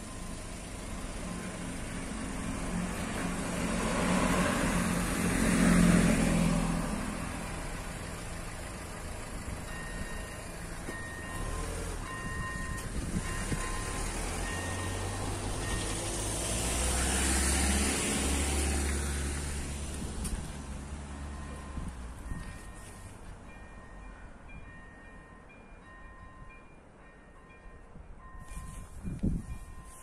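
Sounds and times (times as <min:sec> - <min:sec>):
diesel railcar passing: 0:00.0 - 0:30.0
level crossing bell beeping: 0:09.7 - 0:16.0.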